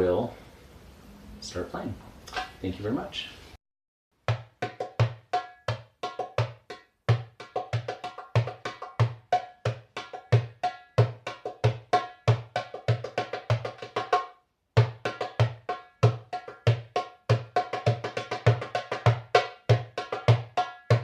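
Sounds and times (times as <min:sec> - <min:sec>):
hand drum played in fast rhythm: 0:04.2 - 0:21.0.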